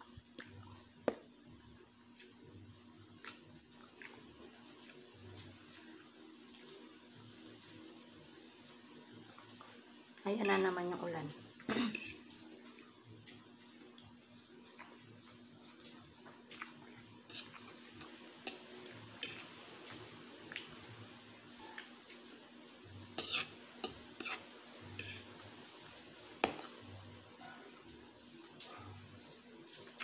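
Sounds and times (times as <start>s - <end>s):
wet chewing: 0.2s - 1.4s, 2.1s - 5.3s, 12.7s - 20.9s
fork scraping a plate: 11.8s - 12.4s, 17.2s - 20.1s, 23.0s - 25.4s.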